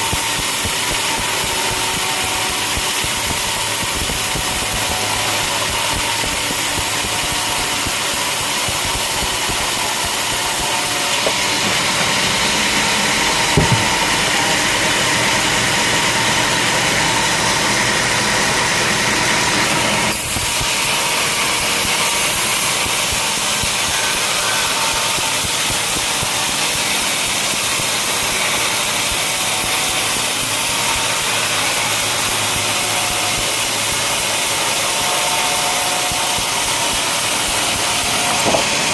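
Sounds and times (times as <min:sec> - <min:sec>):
sawmill machinery drone and hiss: 0:00.0 - 0:38.9
single knock: 0:13.5 - 0:14.1.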